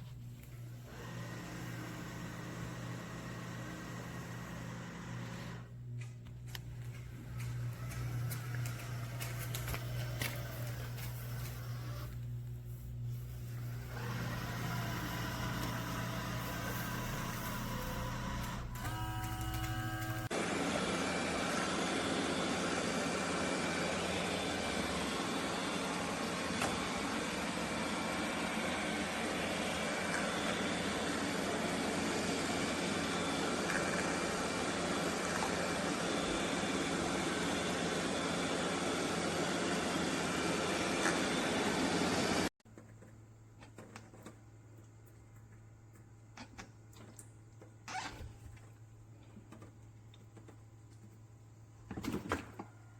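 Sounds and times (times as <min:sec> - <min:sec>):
robot vacuum motor hum: 0:00.4 - 0:05.7, 0:06.5 - 0:42.5.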